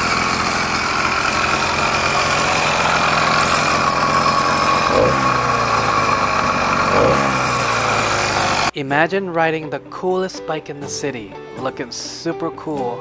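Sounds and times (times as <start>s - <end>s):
small engine running: 0.0s - 8.7s.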